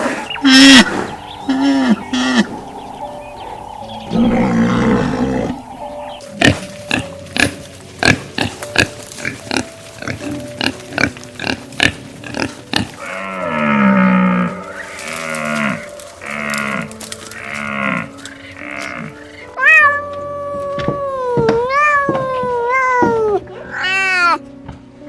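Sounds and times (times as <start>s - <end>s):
animal grunting: 0.0s - 9.6s
animal bleating: 4.1s - 5.6s.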